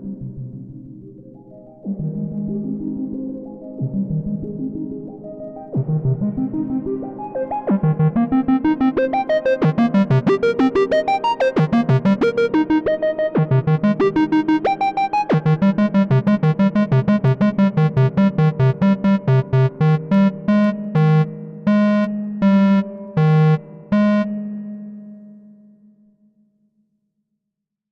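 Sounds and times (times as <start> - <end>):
synthesizer arpeggio: 3.7 - 24.6
long synthesizer notes: 5.8 - 25.4.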